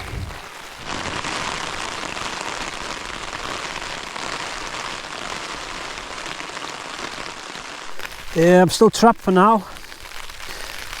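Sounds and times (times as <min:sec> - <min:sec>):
heavy rain on a tarp: 0:00.0 - 0:11.0.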